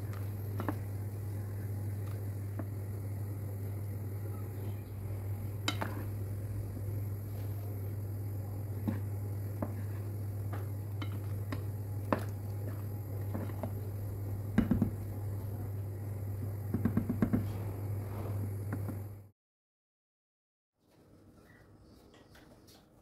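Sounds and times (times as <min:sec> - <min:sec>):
steady low hum: 0:00.0 - 0:19.3.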